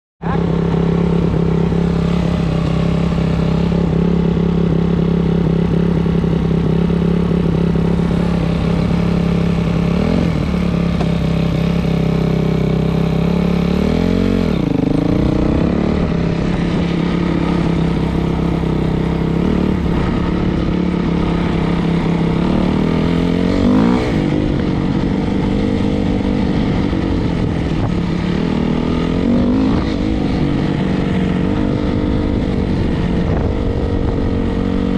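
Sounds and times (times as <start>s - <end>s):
dirt bike engine idling: 0.6s - 23.5s.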